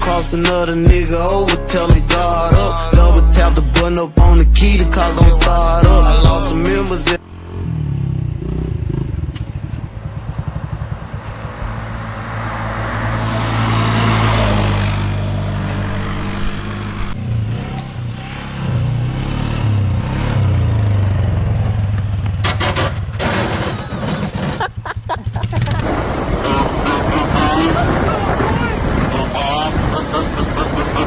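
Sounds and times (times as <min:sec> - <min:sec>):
pit bike engine revving: 0:04.6 - 0:23.4, 0:24.4 - 0:31.0.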